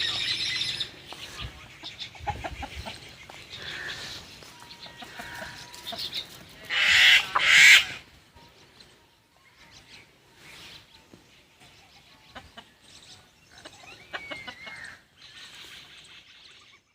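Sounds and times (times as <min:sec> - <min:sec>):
hens clucking: 0:00.0 - 0:08.2, 0:12.0 - 0:15.1.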